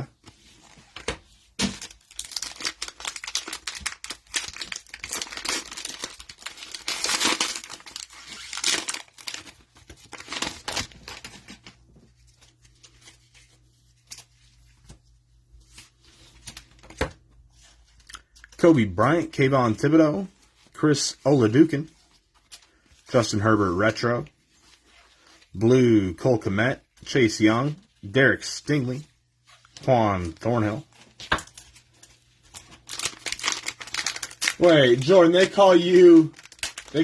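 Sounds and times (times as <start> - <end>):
cellophane wrapper tearing and crinkling: 1.6 - 11.7, 31.3 - 37.0.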